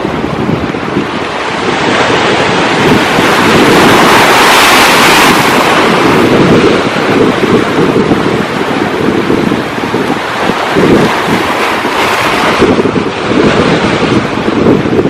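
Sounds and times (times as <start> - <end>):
sea waves breaking on shore: 0.0 - 15.0
wind buffeting microphone: 0.0 - 15.0.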